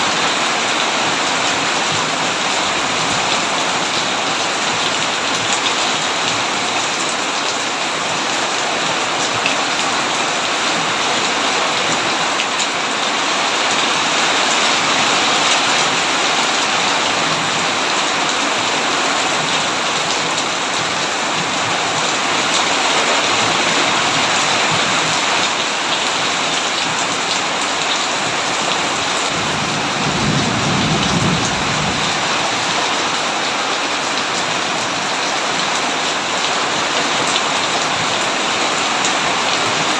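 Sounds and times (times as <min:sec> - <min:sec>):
heavy rain on a tin roof: 0:00.0 - 0:39.9
thunder rumbling: 0:29.3 - 0:32.7.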